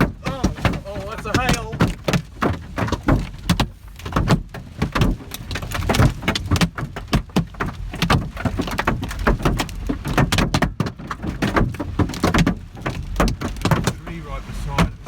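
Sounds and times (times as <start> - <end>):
hailstones hammering car roof: 0.0 - 15.0.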